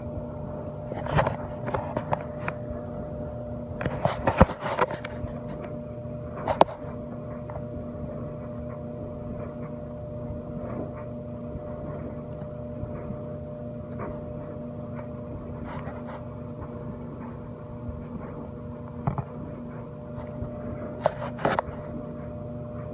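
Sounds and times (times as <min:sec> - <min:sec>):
mechanical motor hum: 0:00.0 - 0:22.9.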